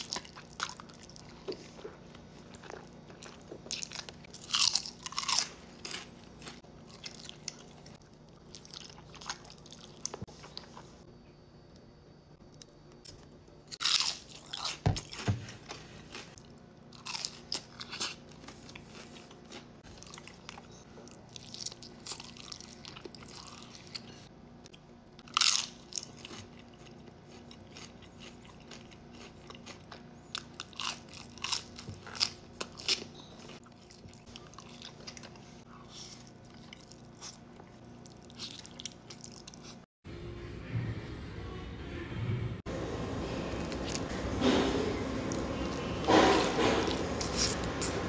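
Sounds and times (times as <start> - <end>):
chewing crunchy food: 0.0 - 11.0, 12.6 - 39.9.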